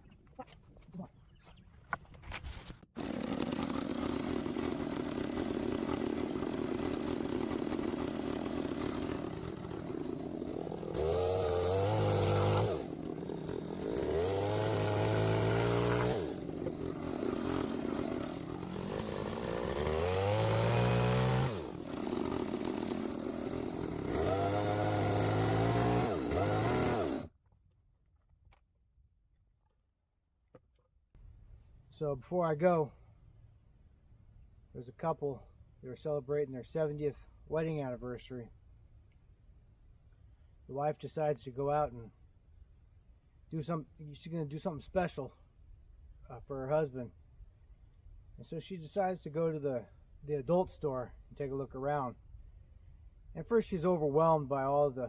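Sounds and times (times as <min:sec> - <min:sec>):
chainsaw idling and revving: 0:03.0 - 0:27.3.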